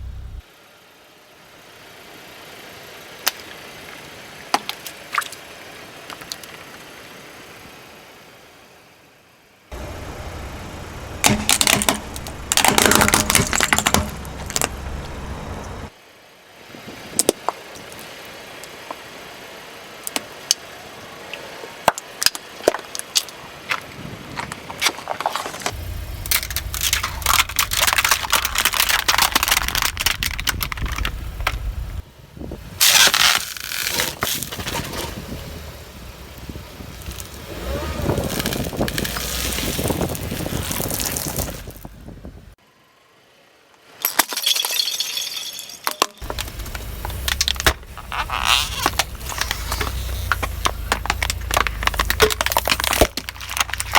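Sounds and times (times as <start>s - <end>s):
low rumble of car: 0.0s - 43.7s, 46.2s - 53.9s
tyres crushing brittle objects: 11.2s - 15.0s, 22.0s - 32.0s, 32.8s - 35.1s, 37.0s - 41.9s, 45.9s - 53.9s.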